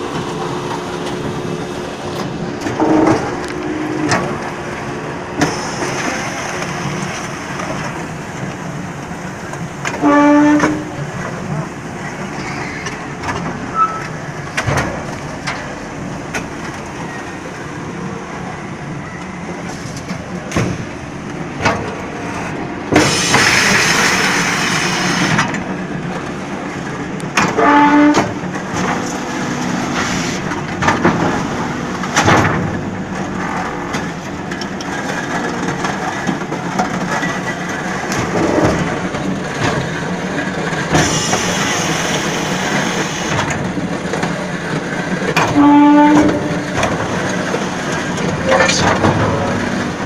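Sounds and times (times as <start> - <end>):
block making machine running: 10.6 - 50.0.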